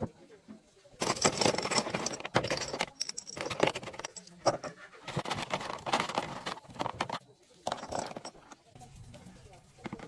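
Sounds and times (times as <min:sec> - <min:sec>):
small metal objects clinking: 0:01.0 - 0:08.7.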